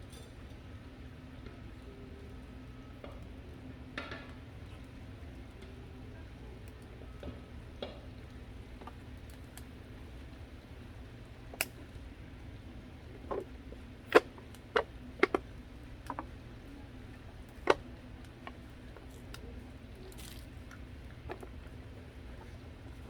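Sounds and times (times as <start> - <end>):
low steady hum: 0.0 - 23.0
light clicks and knocks: 13.1 - 16.4, 17.5 - 19.5.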